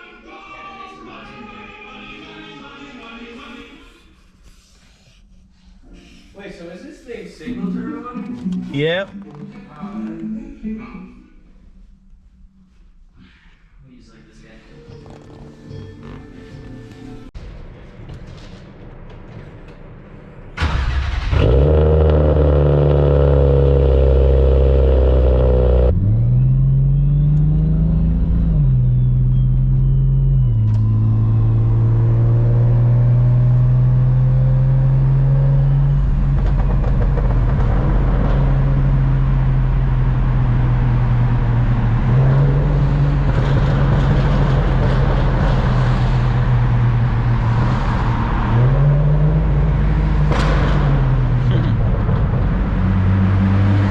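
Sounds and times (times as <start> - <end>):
car engine running loudly: 20.6 - 53.9.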